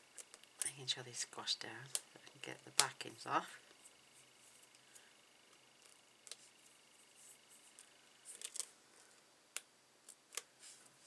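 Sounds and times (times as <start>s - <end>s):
paper backing clicks and crinkles: 4.5s - 9.2s.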